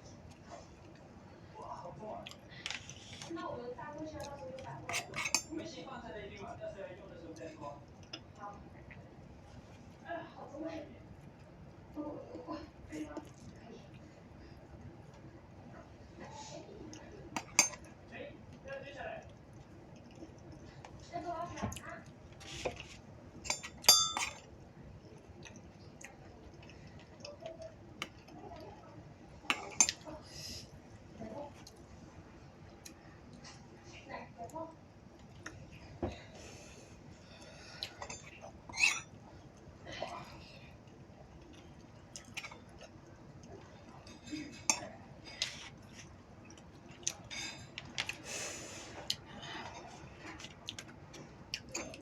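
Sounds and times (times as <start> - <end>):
tableware clinking: 4.9 - 5.6, 17.4 - 17.9, 23.4 - 24.5, 38.0 - 39.1.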